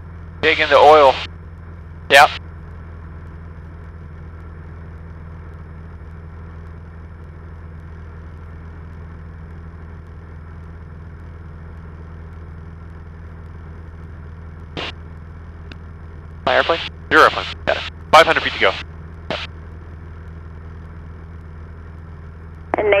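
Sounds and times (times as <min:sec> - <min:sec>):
light aircraft engine drone: 0:00.0 - 0:23.0.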